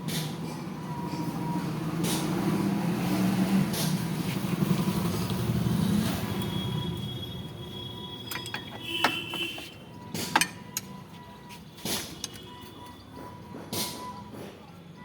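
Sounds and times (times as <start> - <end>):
passing motor vehicle: 0.0 - 7.7
metal tools clinking: 8.2 - 11.0.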